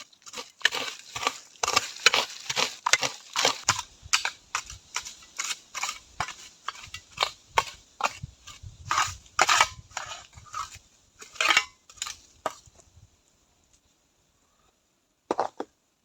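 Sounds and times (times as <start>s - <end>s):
sharp crunching strokes: 0.0s - 12.6s.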